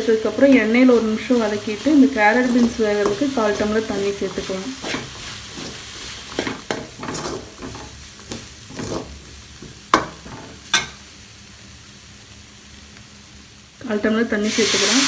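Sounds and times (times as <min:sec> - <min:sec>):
spatula scraping a pan: 0:00.0 - 0:11.0
vegetables sizzling in oil: 0:00.0 - 0:15.0
spatula knocking against pan: 0:09.6 - 0:11.0.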